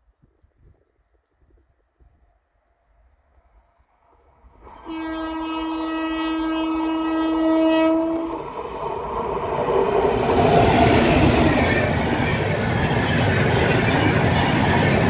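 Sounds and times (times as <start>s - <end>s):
train running past: 3.8s - 15.0s
locomotive horn blast: 4.6s - 8.4s.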